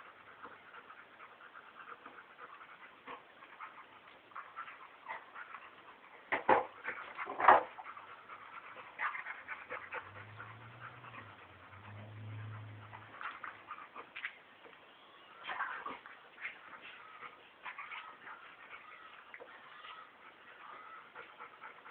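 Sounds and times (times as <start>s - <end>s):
dogs panting: 0.0s - 21.9s
dog growling: 6.9s - 13.9s, 16.8s - 21.9s.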